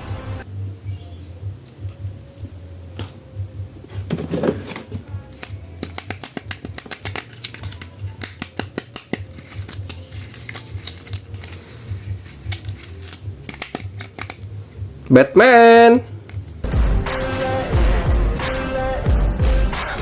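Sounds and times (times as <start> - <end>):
plastic toys clicking and snapping: 5.4 - 14.4
packaging rustle: 5.8 - 14.4.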